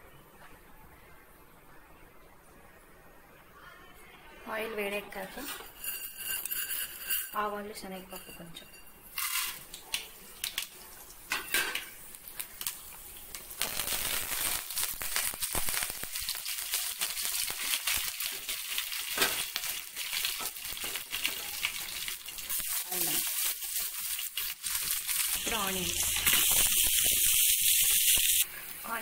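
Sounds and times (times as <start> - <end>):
food sizzling and crackling in oil: 9.1 - 29.0
seeds popping in oil: 12.2 - 28.5.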